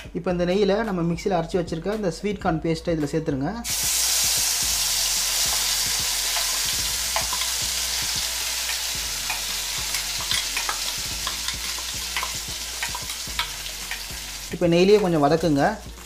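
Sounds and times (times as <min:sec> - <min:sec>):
paste sizzling in hot ghee: 0:03.6 - 0:16.0.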